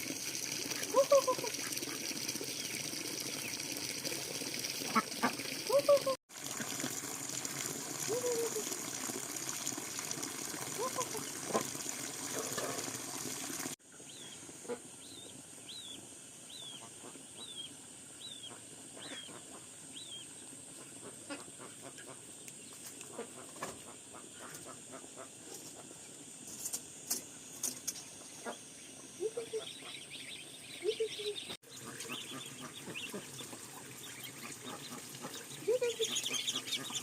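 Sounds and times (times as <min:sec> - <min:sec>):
water gushing: 0:00.0 - 0:13.8, 0:31.7 - 0:37.0.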